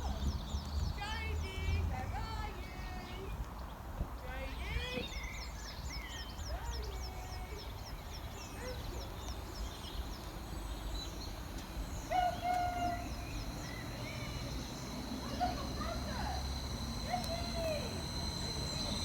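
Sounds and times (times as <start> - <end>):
small birds chirping: 0.0 - 19.0
steady low rumble: 7.7 - 19.0
held tone with overtones: 11.0 - 19.0.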